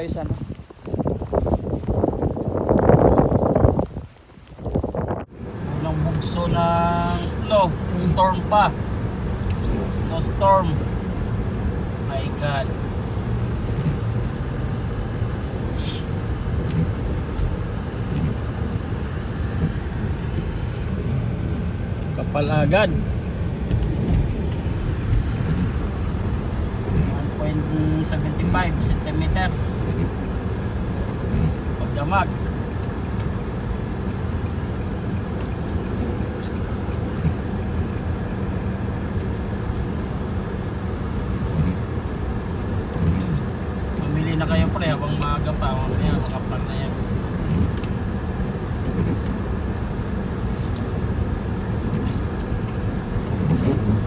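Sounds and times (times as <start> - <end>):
wind buffeting microphone: 0.0 - 5.4
strong wind buffeting microphone: 0.0 - 5.6, 22.7 - 31.8
brief hiss: 15.8 - 16.1.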